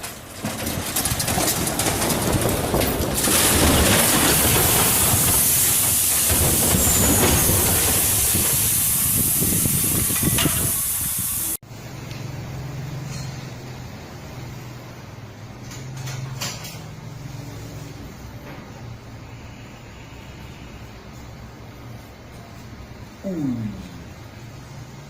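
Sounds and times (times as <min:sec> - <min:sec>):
rushing hiss of vehicle noise: 0:03.3 - 0:11.6.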